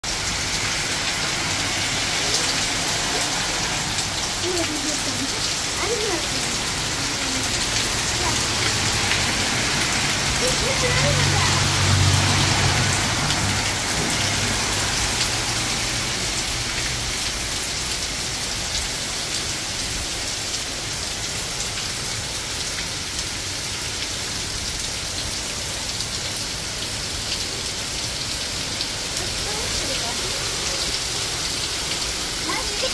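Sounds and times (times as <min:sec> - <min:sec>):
heavy rain on pavement: 0:00.0 - 0:32.9
car driving through water: 0:00.1 - 0:19.6.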